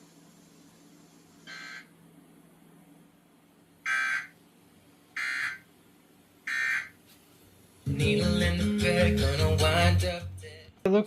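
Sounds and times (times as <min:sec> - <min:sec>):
short buzzing data bursts: 0:03.9 - 0:04.3.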